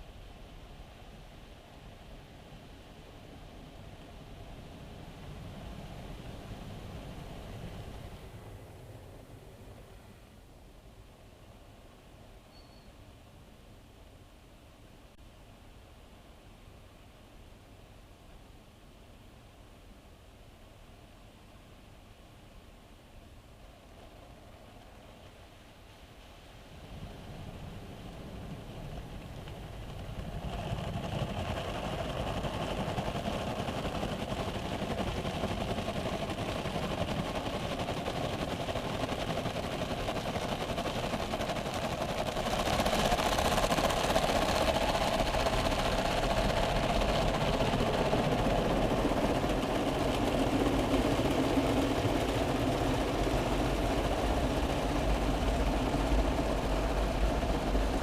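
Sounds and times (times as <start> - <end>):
car wash machine washing: 29.2 - 58.0.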